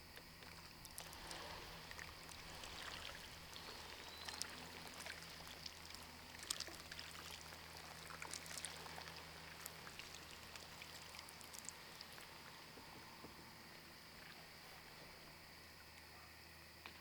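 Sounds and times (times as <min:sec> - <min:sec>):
steady low hum: 0:00.0 - 0:17.0
small splashes and ticks: 0:00.2 - 0:16.1
water trickling and dripping: 0:00.4 - 0:13.4.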